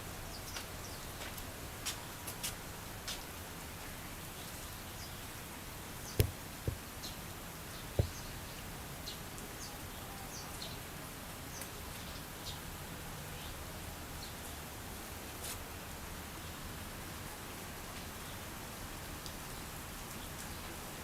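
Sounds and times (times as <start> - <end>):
outdoor background hiss: 0.0 - 21.0
sharp knocks: 6.2 - 6.8, 8.0 - 8.2.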